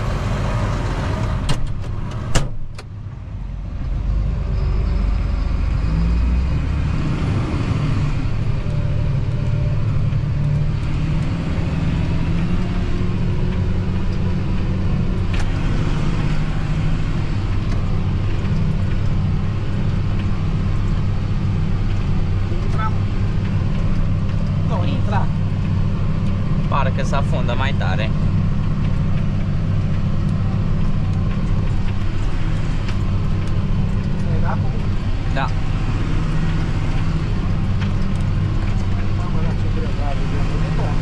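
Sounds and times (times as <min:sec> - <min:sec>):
tractor diesel engine droning: 0:00.0 - 0:41.0.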